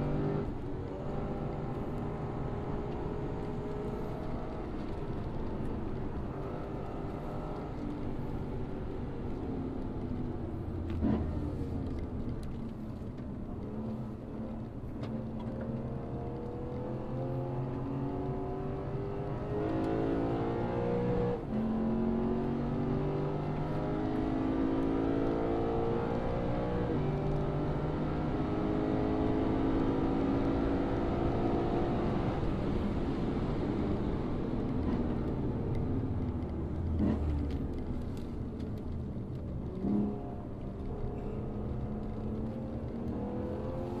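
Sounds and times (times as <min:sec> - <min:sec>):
car engine accelerating hard: 0:09.3 - 0:44.0.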